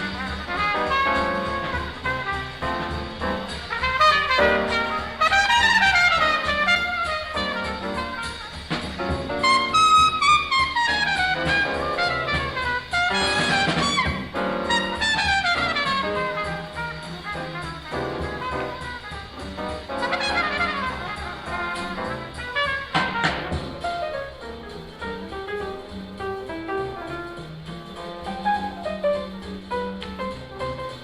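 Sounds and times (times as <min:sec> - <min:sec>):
horn playing fast runs: 0:00.0 - 0:24.0
bebop jazz group: 0:00.0 - 0:31.0.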